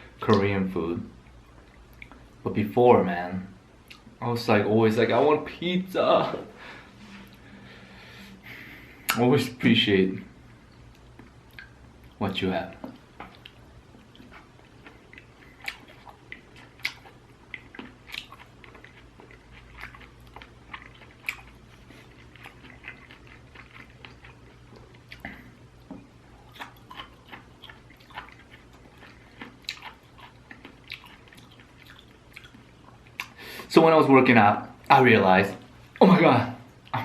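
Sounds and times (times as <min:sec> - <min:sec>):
faint steady hum: 0:00.0 - 0:37.0
person chewing: 0:01.2 - 0:02.4, 0:10.7 - 0:33.7.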